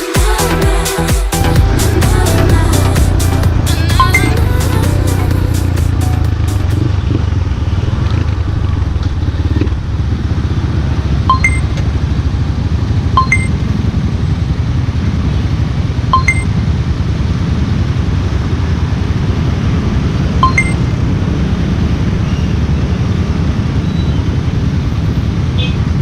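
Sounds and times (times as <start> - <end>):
motorcycle engine running: 1.4 - 22.2
two-note electronic beep: 3.7 - 4.5, 11.3 - 11.8, 13.2 - 13.6, 16.1 - 16.6, 20.4 - 20.9.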